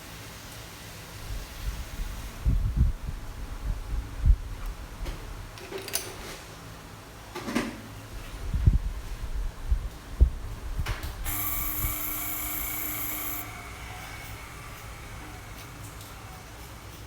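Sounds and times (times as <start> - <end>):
electric motor high whine: 11.3 - 16.4.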